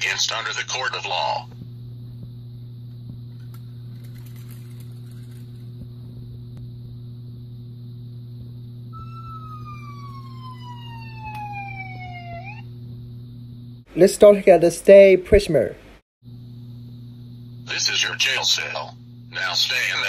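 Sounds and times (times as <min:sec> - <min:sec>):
electrical hum: 0:00.0 - 0:20.0
police siren: 0:08.9 - 0:12.7.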